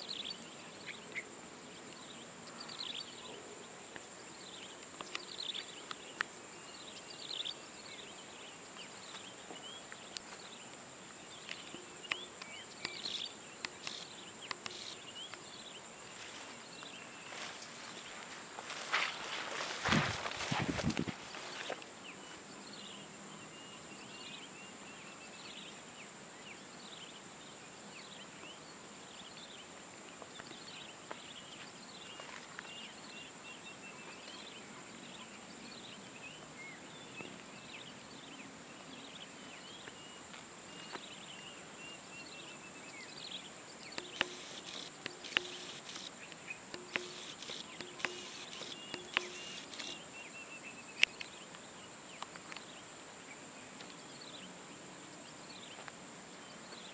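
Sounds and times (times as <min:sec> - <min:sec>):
high insect drone: 0:00.0 - 0:56.9
sharp clicks: 0:11.4 - 0:15.4, 0:43.8 - 0:50.0
short high chirping calls: 0:43.9 - 0:50.0.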